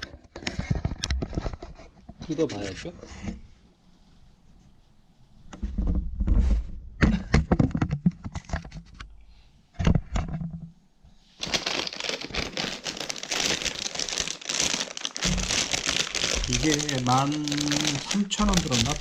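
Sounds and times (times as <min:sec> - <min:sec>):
packaging crinkling: 0:11.4 - 0:19.0
parcel knocks and crackles: 0:13.3 - 0:19.0.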